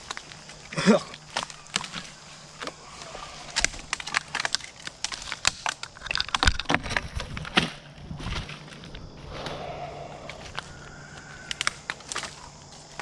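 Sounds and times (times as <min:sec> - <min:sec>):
footsteps through brush: 0:00.0 - 0:05.9
twigs snapping underfoot: 0:00.0 - 0:13.0.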